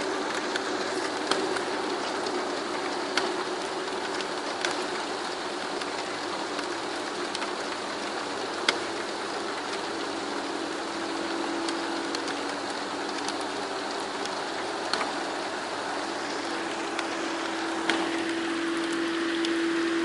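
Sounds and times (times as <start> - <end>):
low humming drone: 0.0 - 20.0
raindrop clicks: 0.0 - 20.0
steady rain: 0.0 - 20.0.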